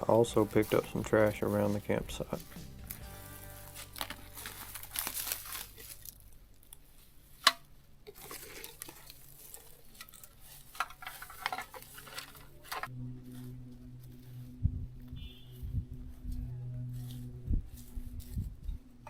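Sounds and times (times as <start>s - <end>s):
camp gear rustling and clattering: 0.0s - 14.2s
steady low hum: 12.8s - 19.0s.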